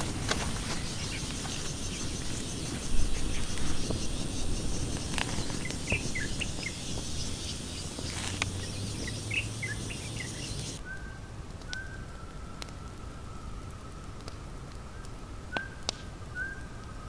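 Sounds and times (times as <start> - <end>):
insects chirring: 0.0 - 10.8
bird chirps: 0.0 - 13.6.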